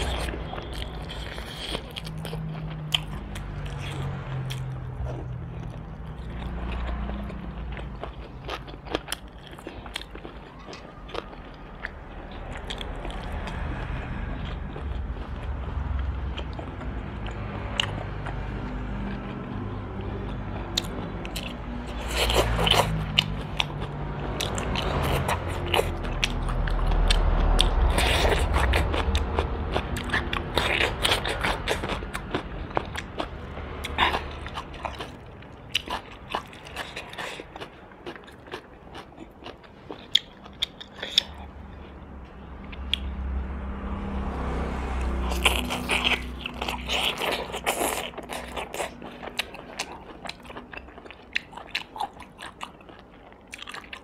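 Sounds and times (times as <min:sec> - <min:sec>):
chewing crispy food: 0:00.0 - 0:43.4, 0:44.4 - 0:54.0.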